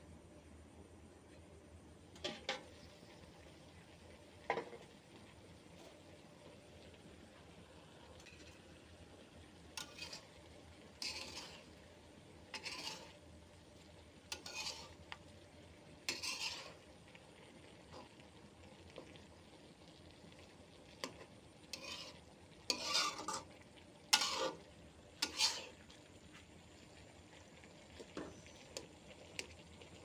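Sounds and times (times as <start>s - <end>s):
faint sizzle: 0.0s - 30.0s
spatula scraping frying pan: 2.2s - 2.8s, 9.6s - 15.2s, 16.0s - 17.0s, 21.0s - 26.0s.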